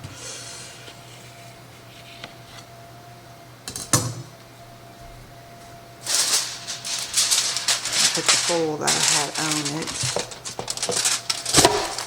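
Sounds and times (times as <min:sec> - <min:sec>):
faint appliance hum: 0:00.0 - 0:12.0
aluminium foil crinkling: 0:06.0 - 0:12.0.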